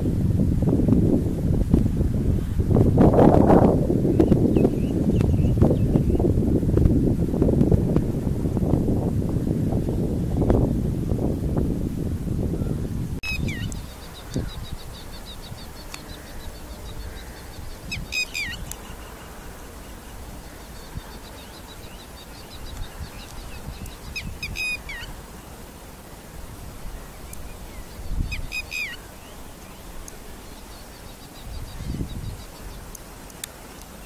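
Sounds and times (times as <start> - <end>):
wind rumble on microphone: 0.0 - 19.1, 20.1 - 25.2, 26.3 - 33.5
thin high bird chirping: 12.6 - 25.5, 26.8 - 34.0
bird call with falling notes: 13.2 - 13.7, 17.9 - 19.0, 28.3 - 29.0.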